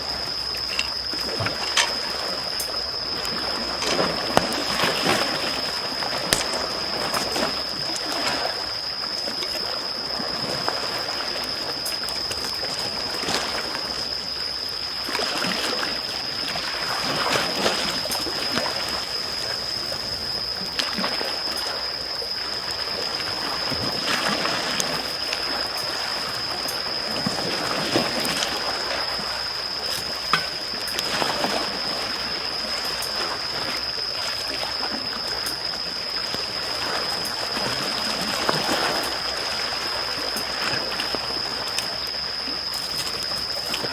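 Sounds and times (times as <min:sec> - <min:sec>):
small waves lapping on shore: 0:00.0 - 0:43.9
campfire crackling and popping: 0:06.2 - 0:07.0.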